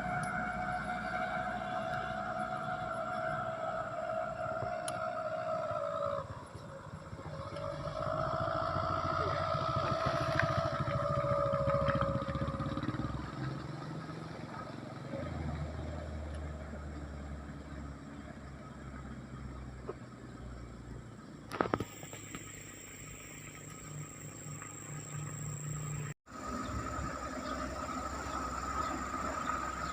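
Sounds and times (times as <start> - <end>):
rising and falling whine: 0.0 - 13.8
truck engine running: 16.5 - 29.9.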